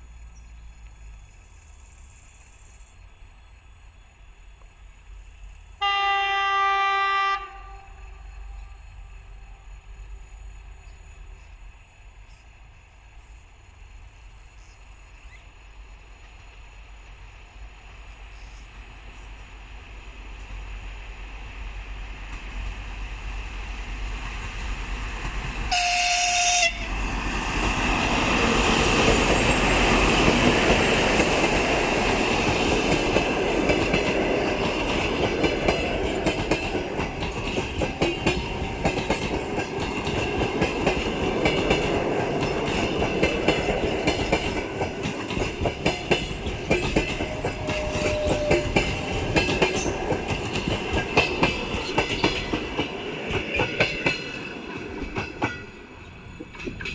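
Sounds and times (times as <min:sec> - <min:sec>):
locomotive horn blast: 0:05.8 - 0:08.8, 0:25.7 - 0:27.0, 0:47.2 - 0:49.0
train wheels clattering over rail joints: 0:27.1 - 0:56.9.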